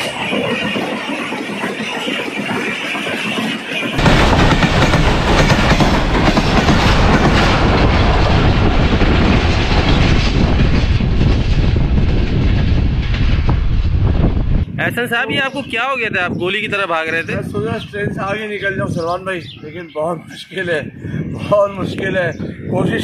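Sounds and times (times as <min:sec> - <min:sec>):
train passing at high speed: 0:00.0 - 0:15.2.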